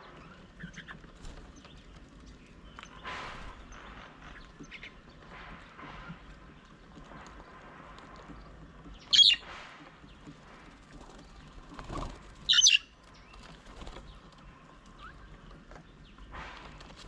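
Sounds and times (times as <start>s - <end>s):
faint background birdsong: 0.0s - 17.0s
bird harsh calls: 8.9s - 15.3s.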